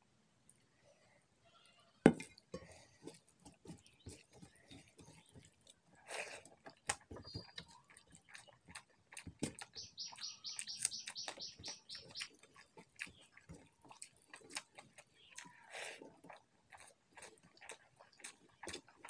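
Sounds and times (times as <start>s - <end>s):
mouth chewing and smacking: 2.2s - 19.0s
bird chirping rapidly: 9.7s - 12.3s.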